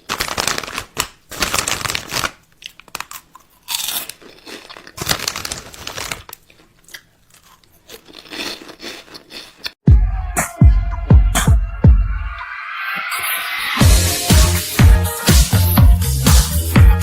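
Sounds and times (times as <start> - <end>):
close-up crunching: 0.0 - 9.8.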